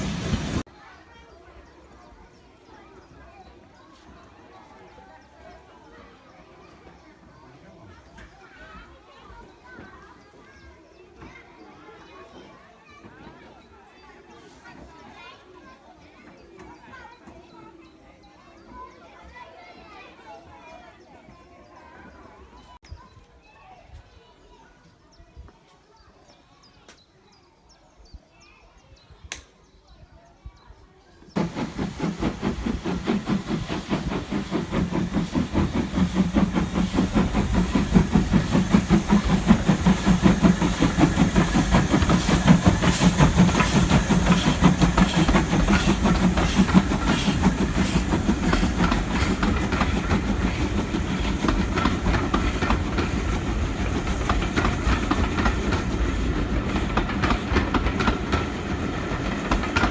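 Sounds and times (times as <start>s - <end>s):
wheels rattling on rail: 0.0s - 17.9s, 31.2s - 59.9s
steam train running: 0.0s - 18.0s, 31.2s - 59.9s
faint birdsong: 0.7s - 59.8s.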